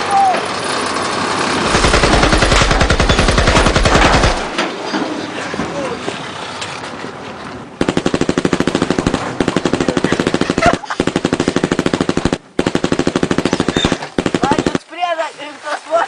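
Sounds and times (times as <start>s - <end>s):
automatic gunfire bursts: 1.6s - 4.6s, 7.8s - 14.8s.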